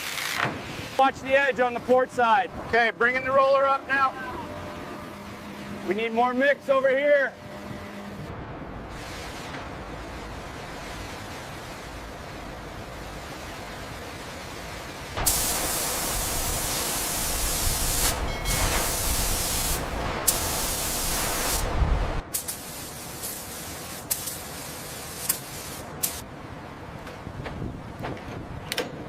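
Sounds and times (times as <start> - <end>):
loud spray hiss: 8.9 - 26.3.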